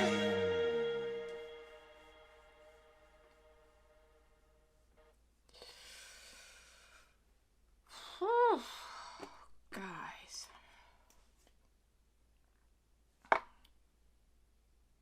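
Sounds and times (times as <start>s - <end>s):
song: 0.0s - 2.8s.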